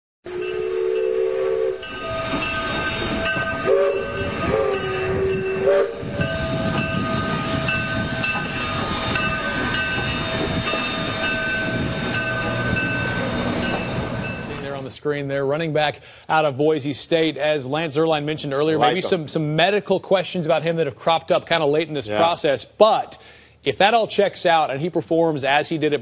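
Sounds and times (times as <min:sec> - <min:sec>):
train whistle blasts: 0:00.3 - 0:11.9
train rolling and hissing: 0:00.3 - 0:14.9.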